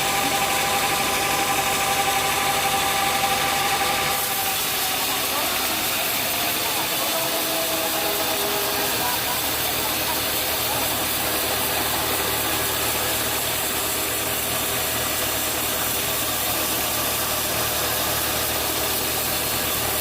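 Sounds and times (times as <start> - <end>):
sawmill machinery droning: 0.0 - 20.0.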